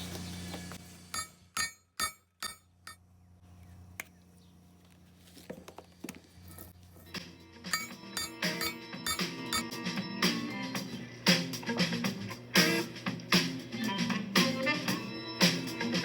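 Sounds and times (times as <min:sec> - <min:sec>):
sharp metallic strikes: 0:01.2 - 0:03.0, 0:07.7 - 0:09.7.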